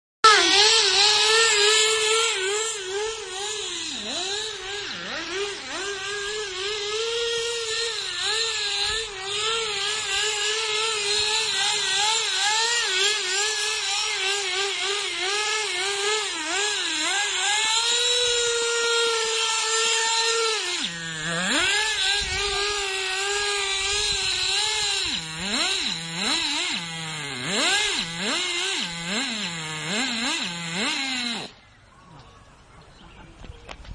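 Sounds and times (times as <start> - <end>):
rc car engine revving: 0.2 - 31.7.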